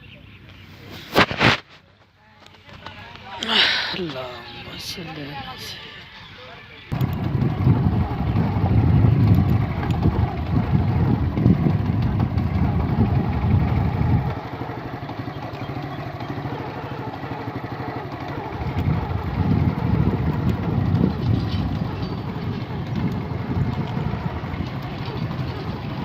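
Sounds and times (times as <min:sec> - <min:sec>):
tractor engine running: 0:06.9 - 0:26.0.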